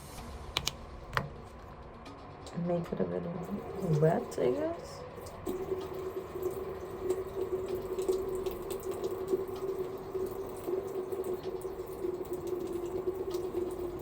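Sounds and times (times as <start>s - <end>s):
tap water running into sink: 3.4s - 14.0s.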